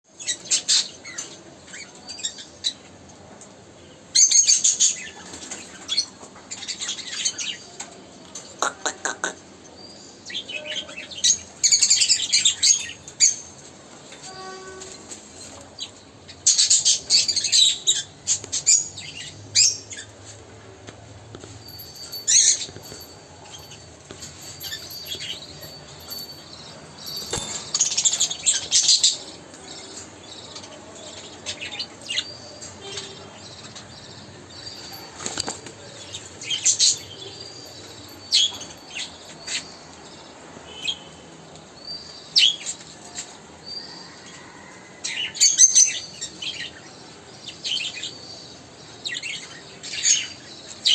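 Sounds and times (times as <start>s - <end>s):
birds chirping: 21.4s - 41.2s.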